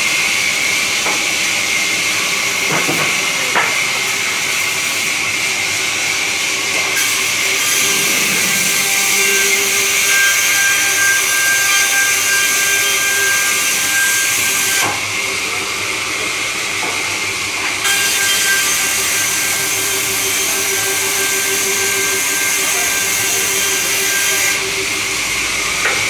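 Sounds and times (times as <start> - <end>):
saw cutting wood: 0.9 - 15.4, 17.8 - 26.0.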